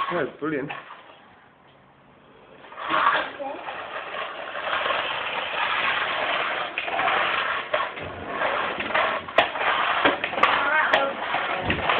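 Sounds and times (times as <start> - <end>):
toy vacuum motor whirring: 2.7 - 11.9.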